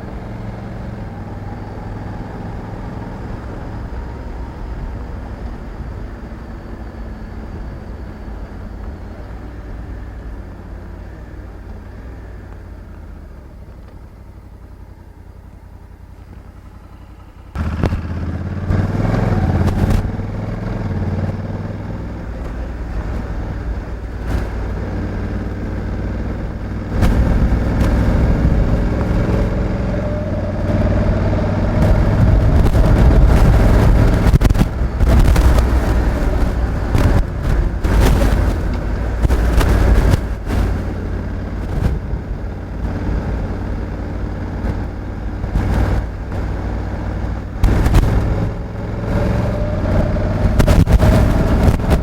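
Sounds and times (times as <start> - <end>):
motorcycle engine accelerating: 0.0 - 52.0
wind noise: 17.6 - 52.0.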